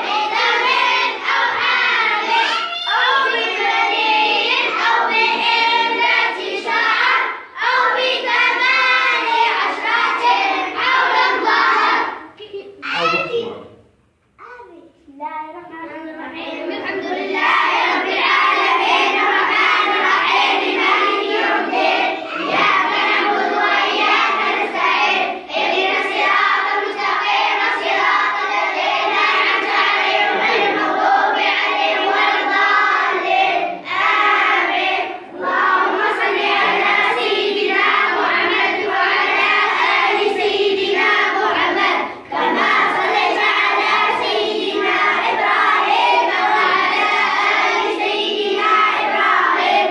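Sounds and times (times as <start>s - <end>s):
children chanting in unison: 0.0s - 13.6s, 16.0s - 49.9s.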